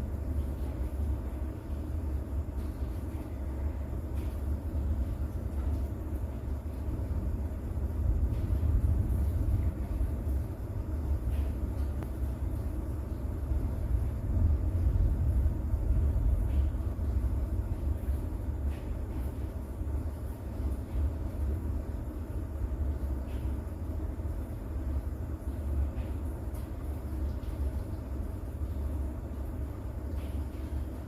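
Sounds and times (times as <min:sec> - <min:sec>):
deep thunder rumble: 0:00.0 - 0:22.9
soft rain: 0:00.0 - 0:31.0
faint raindrop ticks: 0:04.0 - 0:14.8, 0:15.8 - 0:31.0.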